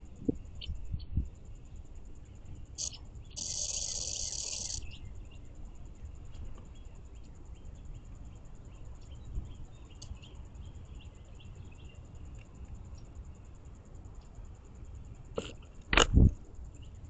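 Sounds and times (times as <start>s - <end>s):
high insect trill: 0.0s - 17.0s
birds chirping: 2.4s - 5.5s.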